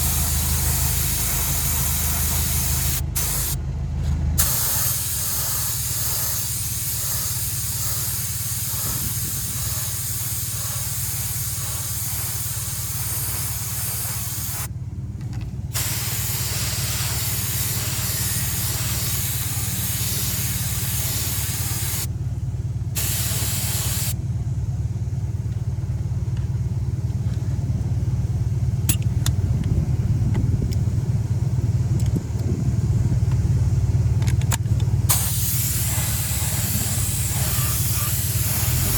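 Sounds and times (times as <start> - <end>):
spray gun hissing: 0.0 - 3.6, 4.4 - 14.7, 15.7 - 22.1, 23.0 - 24.2, 35.1 - 38.9
low machine hum: 0.0 - 38.9.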